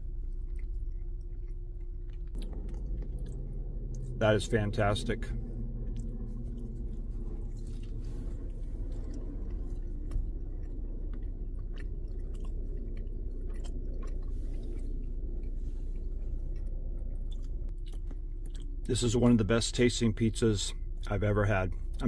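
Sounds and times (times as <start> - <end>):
person chewing food: 0.0 - 4.3, 5.3 - 18.9
steady low hum: 0.0 - 22.0
wet mouth clicks: 8.8 - 18.8.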